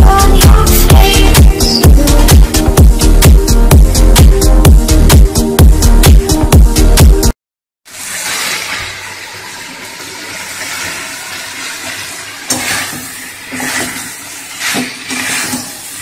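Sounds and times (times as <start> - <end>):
intro music: 0.0 - 7.3
curry sizzling in a pan: 7.9 - 16.0
metal spatula scraping pan: 9.5 - 16.0.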